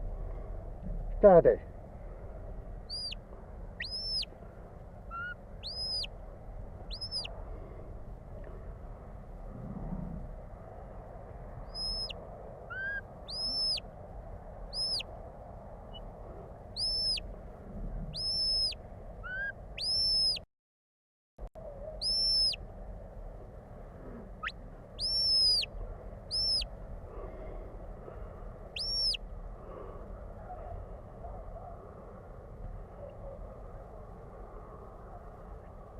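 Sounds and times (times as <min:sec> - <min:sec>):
steady low rush: 0:00.0 - 0:20.4, 0:21.5 - 0:35.9
shepherd's whistle notes: 0:18.2 - 0:20.4, 0:22.0 - 0:22.6, 0:28.8 - 0:29.2.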